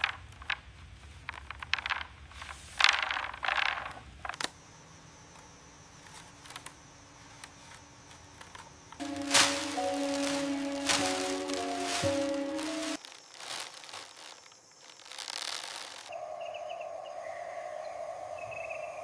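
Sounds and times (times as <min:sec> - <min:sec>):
scraping and rustling handling noises: 0:07.2 - 0:16.1
music: 0:09.0 - 0:13.0.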